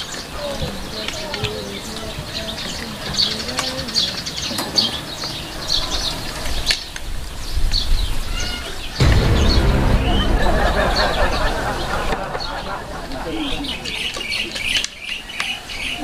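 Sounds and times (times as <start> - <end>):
small birds chirping: 0.0 - 9.0, 13.6 - 16.0.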